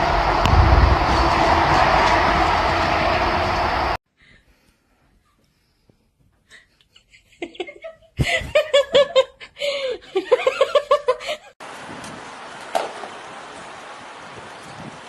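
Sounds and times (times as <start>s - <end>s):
wind noise on microphone: 0.0s - 4.0s, 11.7s - 12.4s, 13.5s - 15.0s
high-pitched laughter: 6.9s - 11.6s.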